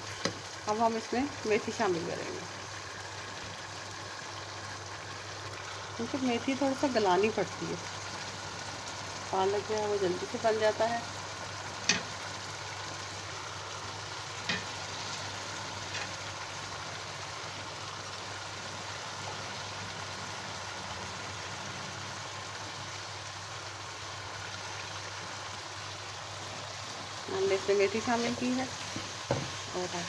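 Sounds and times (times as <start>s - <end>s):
food sizzling in a wok: 0.0s - 30.0s.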